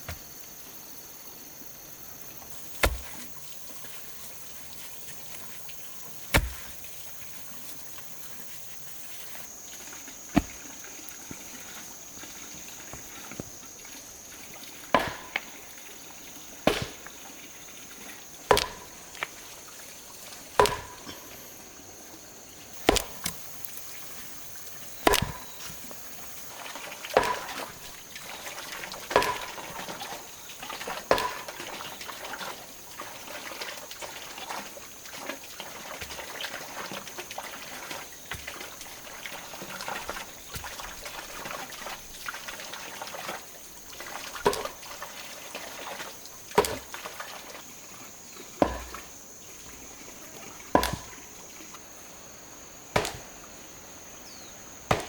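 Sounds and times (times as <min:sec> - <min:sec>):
sharp chopping strikes: 0:02.6 - 0:05.6, 0:06.2 - 0:06.9, 0:10.3 - 0:10.7, 0:14.9 - 0:15.5, 0:16.6 - 0:17.1, 0:18.5 - 0:19.1, 0:20.6 - 0:21.2, 0:22.8 - 0:23.7, 0:24.9 - 0:26.0, 0:27.2 - 0:28.0, 0:48.6 - 0:49.0, 0:50.8 - 0:51.2, 0:53.0 - 0:53.3.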